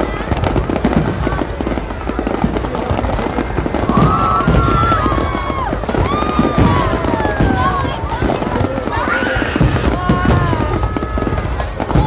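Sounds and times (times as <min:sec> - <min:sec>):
fireworks bursting and crackling: 0:00.0 - 0:12.0.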